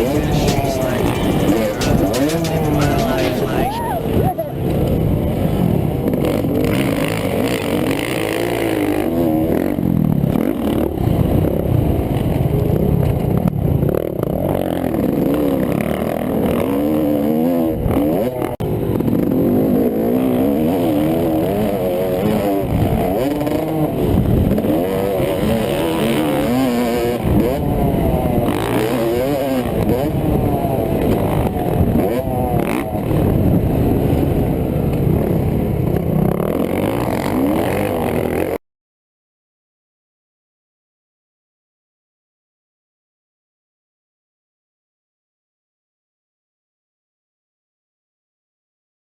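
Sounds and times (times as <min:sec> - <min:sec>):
dirt bike engine revving: 0:00.0 - 0:11.4, 0:14.2 - 0:38.6.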